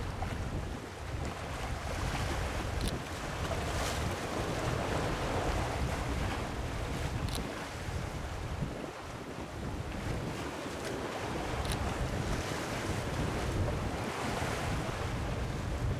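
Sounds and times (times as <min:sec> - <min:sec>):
wind rumbling on microphone: 0:00.0 - 0:15.9
faint short clicks: 0:02.8 - 0:03.0, 0:07.2 - 0:07.5, 0:11.6 - 0:11.9.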